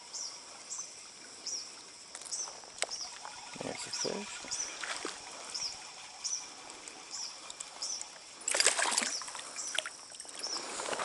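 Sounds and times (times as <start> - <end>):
bird chirping: 0.0 - 8.2, 9.0 - 10.8
fish splashing in water: 7.4 - 10.8.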